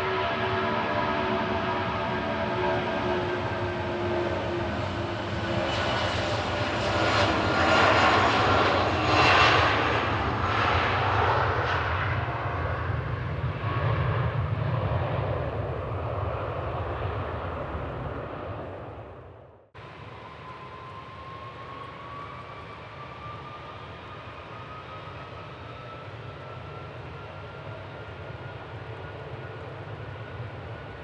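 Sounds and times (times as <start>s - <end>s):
airliner engine whine: 0.0s - 31.0s.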